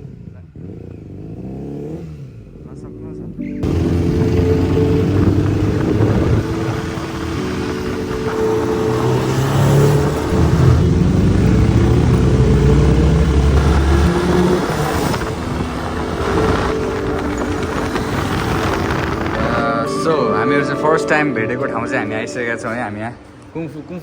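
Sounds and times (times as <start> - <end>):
motorcycle engine revving: 0.0 - 2.9, 3.6 - 19.7.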